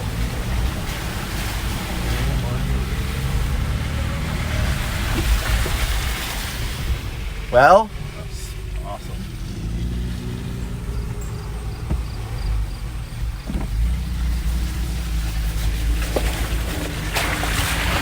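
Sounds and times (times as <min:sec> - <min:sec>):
engine running at low speed: 0:00.0 - 0:18.0
short knocks: 0:11.6 - 0:14.4.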